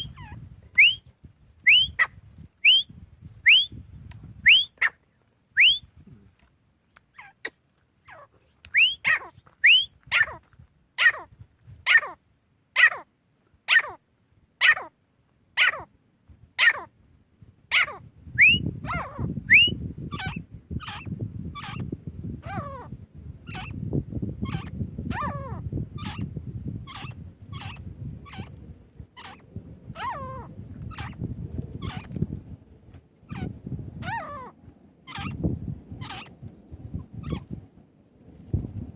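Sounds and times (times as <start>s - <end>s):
francolin calling: 0.0s - 3.8s, 4.4s - 5.0s, 5.6s - 5.9s, 7.1s - 11.3s, 17.7s - 22.9s, 23.5s - 23.8s, 24.4s - 26.3s, 26.9s - 28.6s, 29.2s - 31.2s, 31.8s - 32.1s, 33.3s - 35.4s, 36.0s - 36.4s.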